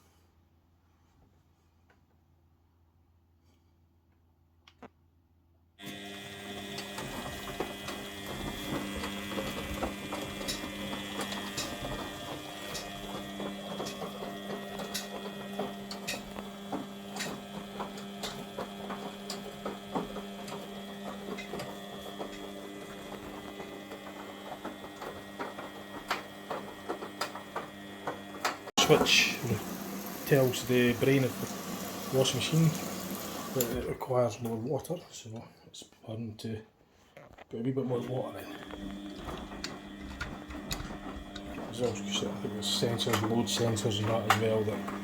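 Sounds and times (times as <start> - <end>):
washing machine motor hum: 5.8 - 34.6, 37.9 - 45.0.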